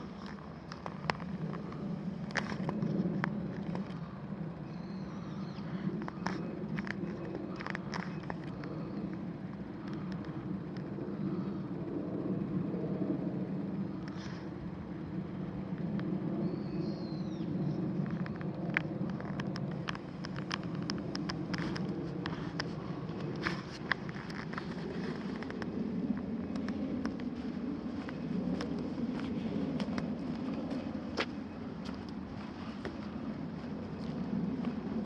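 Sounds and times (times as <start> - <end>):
sharp light clicks and crackles: 0.0 - 12.0, 17.8 - 33.0
distant road traffic rumble: 0.0 - 35.0.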